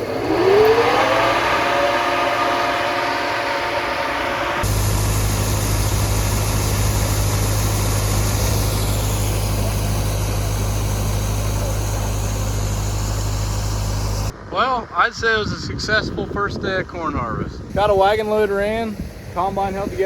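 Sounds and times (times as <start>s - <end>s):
whining machine tone: 0.0s - 14.4s
diesel engine humming: 0.0s - 15.5s.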